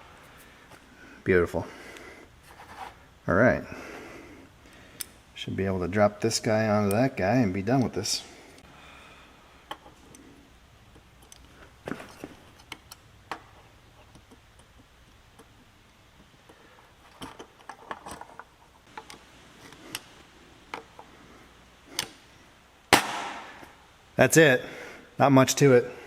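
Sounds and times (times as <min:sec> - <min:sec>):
small parts clicking and tapping: 0:10.9 - 0:21.1.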